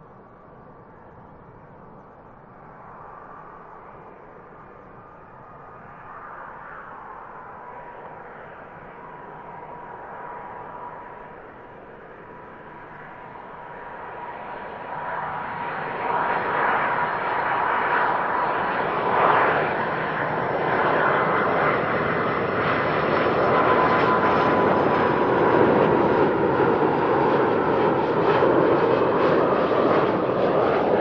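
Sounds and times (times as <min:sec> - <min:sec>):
jet engines passing: 0:06.2 - 0:31.0.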